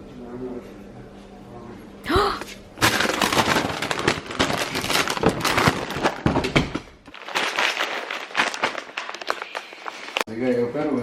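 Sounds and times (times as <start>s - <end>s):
crackling handling noise: 2.8s - 10.3s.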